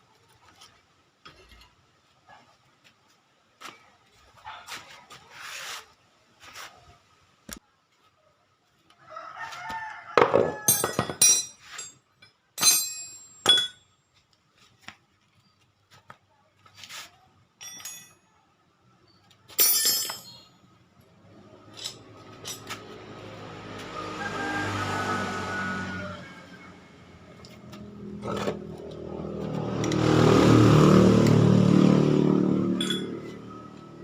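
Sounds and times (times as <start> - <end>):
rooster crowing: 9.0 - 11.0, 23.8 - 27.2
metal tools clinking: 10.5 - 13.9, 17.6 - 18.2, 19.5 - 20.6, 21.6 - 22.9, 32.8 - 33.7
vehicle engine humming: 21.0 - 34.0.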